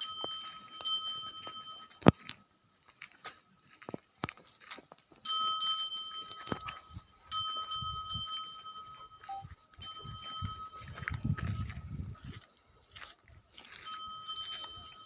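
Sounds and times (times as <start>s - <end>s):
bell-like ringing tone: 0.0s - 2.1s, 5.2s - 11.8s, 13.7s - 15.0s.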